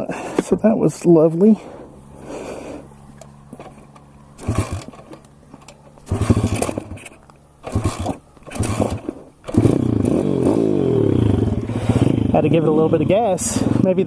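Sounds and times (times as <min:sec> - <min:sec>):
motorbike engine running with throttle blips: 0:02.9 - 0:14.0
engine cranking: 0:03.2 - 0:12.5.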